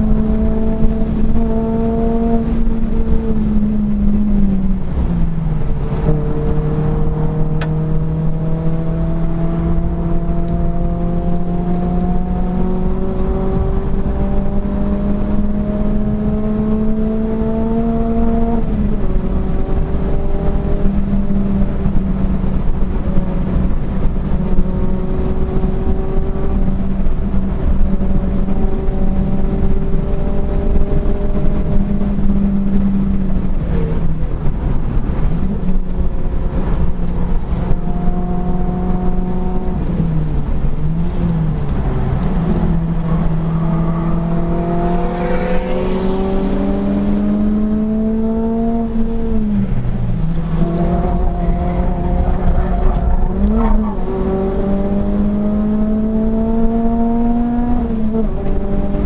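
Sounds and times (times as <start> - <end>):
car engine from inside cabin: 0.0 - 59.0
road and wind noise: 0.0 - 59.0.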